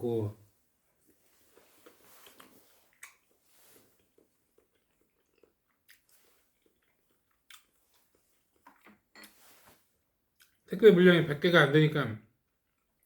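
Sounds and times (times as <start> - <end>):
person chewing food: 1.0 - 9.6, 10.2 - 10.7, 12.4 - 13.0.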